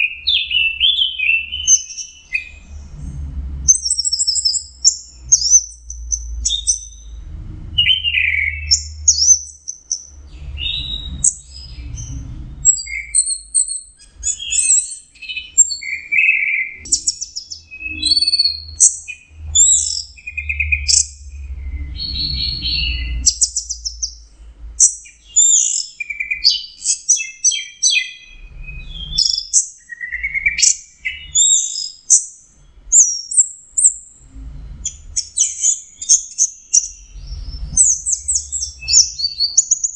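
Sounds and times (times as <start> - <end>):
low rumble: 1.5 - 14.4, 17.9 - 24.8, 34.2 - 35.3.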